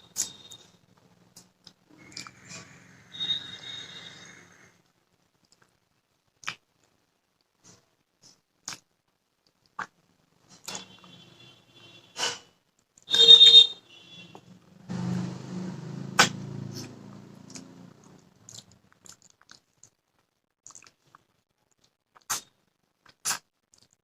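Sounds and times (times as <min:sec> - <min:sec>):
eating mouth noises: 0:01.4 - 0:03.4, 0:05.4 - 0:07.0, 0:07.6 - 0:08.9, 0:09.5 - 0:10.9, 0:16.2 - 0:20.0, 0:20.6 - 0:24.0.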